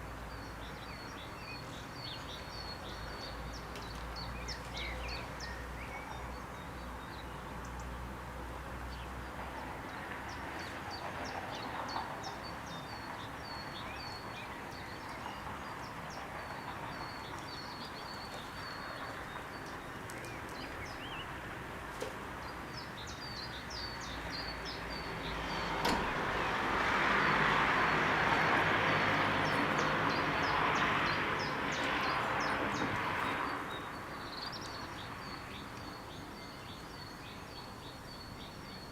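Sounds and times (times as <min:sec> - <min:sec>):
birds chirping: 0:08.9 - 0:38.9.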